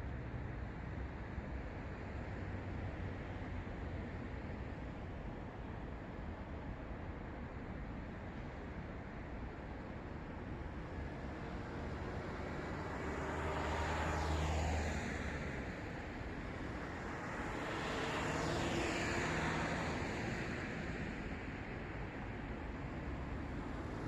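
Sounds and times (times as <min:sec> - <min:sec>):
cars passing by: 0:11.2 - 0:24.0.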